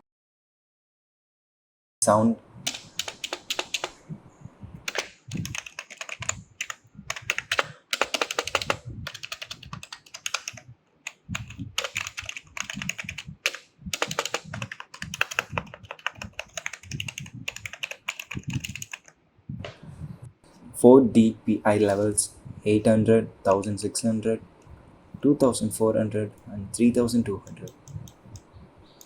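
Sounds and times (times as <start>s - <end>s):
keyboard typing clicks: 2.7s - 4.0s, 4.9s - 19.1s.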